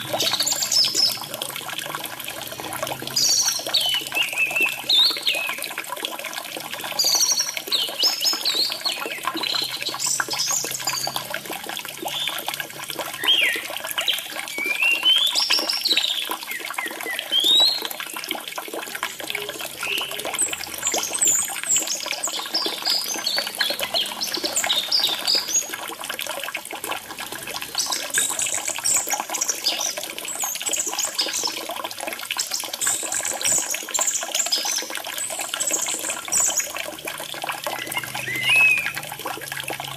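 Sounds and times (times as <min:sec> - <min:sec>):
trickling water: 0:00.0 - 0:39.9
thrush singing whistled phrases: 0:13.2 - 0:18.0, 0:19.1 - 0:25.7, 0:37.6 - 0:39.2.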